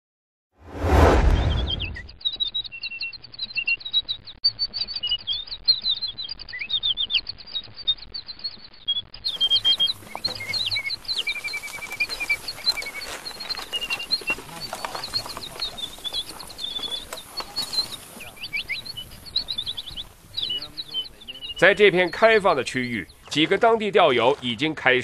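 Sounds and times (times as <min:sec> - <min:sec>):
loud low boom: 0:00.7 - 0:02.2
small birds chirping and singing: 0:01.4 - 0:25.0.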